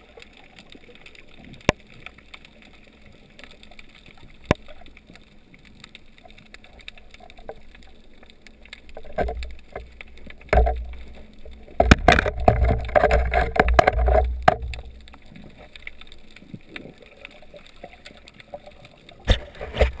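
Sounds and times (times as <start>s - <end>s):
underwater water rumble: 0.0s - 20.0s
knocks and rushing underwater: 8.9s - 16.0s, 19.1s - 20.0s.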